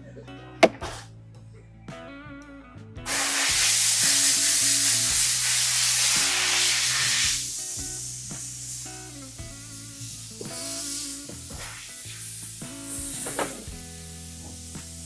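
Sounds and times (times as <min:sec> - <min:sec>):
hiss of spray or escaping air: 0:03.1 - 0:15.0.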